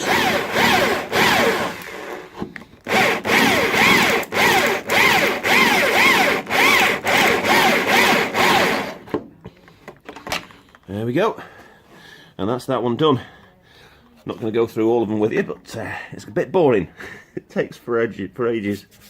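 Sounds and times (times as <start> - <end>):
electric drill squealing through steel: 2.9 - 9.0.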